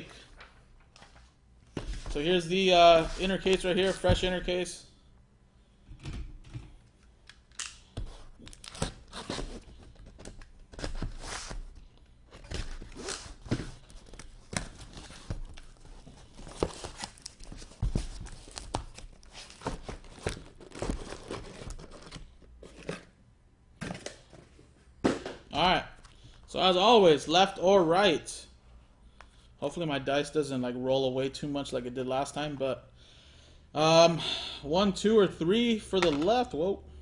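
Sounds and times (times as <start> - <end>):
boxes being handled: 8.0 - 23.2.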